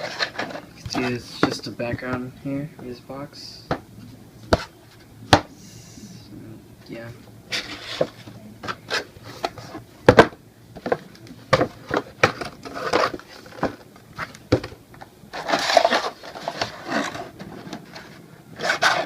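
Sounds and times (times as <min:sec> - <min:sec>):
packaging rustling: 0:15.3 - 0:19.0.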